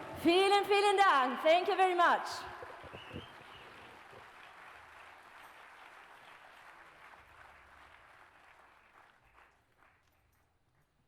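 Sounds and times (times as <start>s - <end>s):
faint audience applause: 2.6s - 10.6s.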